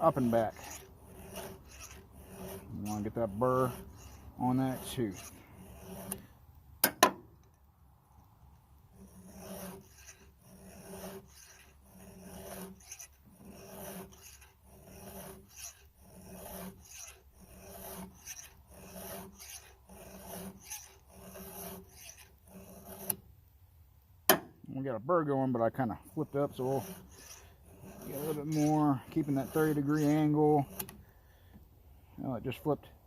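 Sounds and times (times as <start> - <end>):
file rasping on saw chain: 0.0 - 6.4, 8.9 - 23.2, 25.7 - 31.2.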